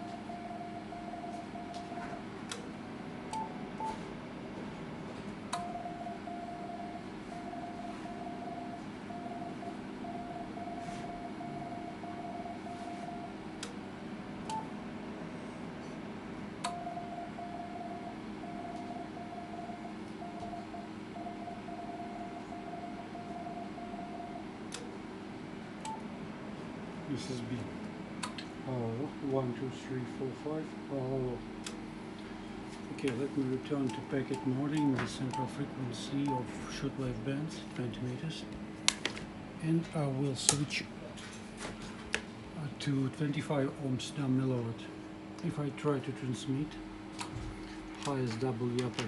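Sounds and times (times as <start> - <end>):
morse code tone: 0.0 - 2.2, 5.6 - 13.4, 16.8 - 24.4
steady low hum: 0.0 - 49.0.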